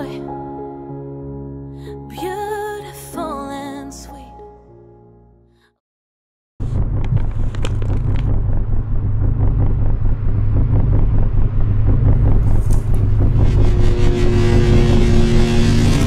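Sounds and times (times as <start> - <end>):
low outdoor rumble: 6.6 - 16.0.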